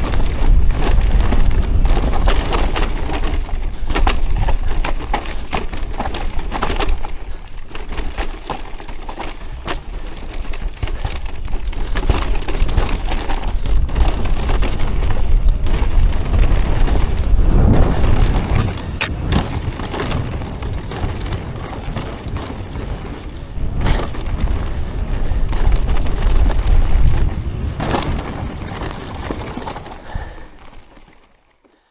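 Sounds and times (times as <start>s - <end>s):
bike rattling and knocking: 0.0s - 17.4s, 18.0s - 31.1s
wind buffeting microphone: 12.6s - 29.0s.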